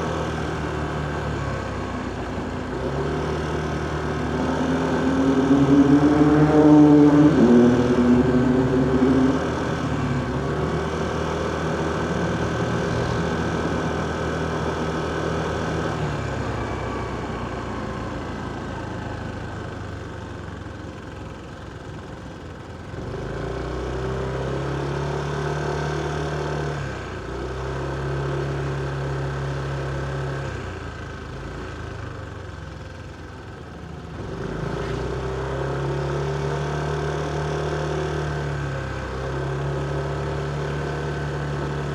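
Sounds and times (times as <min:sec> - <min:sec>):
motorcycle engine: 0:00.0 - 0:23.4
surrounding traffic: 0:00.0 - 0:41.9.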